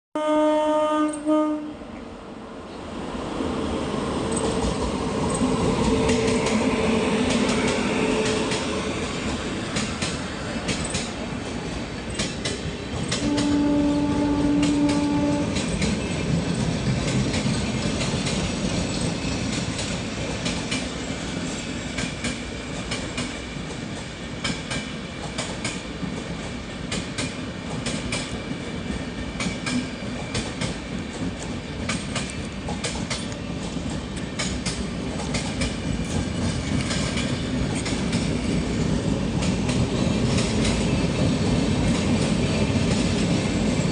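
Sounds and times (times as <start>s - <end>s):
train horn blast: 0.2s - 1.9s, 13.2s - 15.7s
train wheels clattering over rails: 4.2s - 43.9s.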